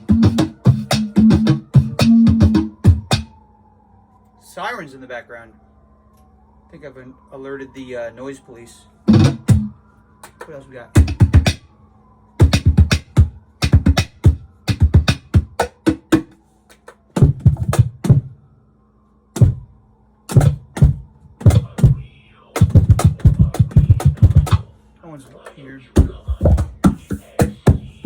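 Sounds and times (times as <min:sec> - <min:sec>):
faint steady hum: 0:16.3 - 0:28.0
cajon hand hits: 0:26.0 - 0:27.9.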